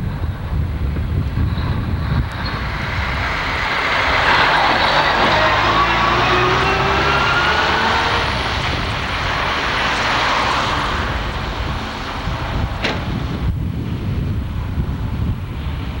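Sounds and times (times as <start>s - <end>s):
heavy rushing noise: 0.0s - 16.0s
truck engine revving hard: 1.7s - 13.5s.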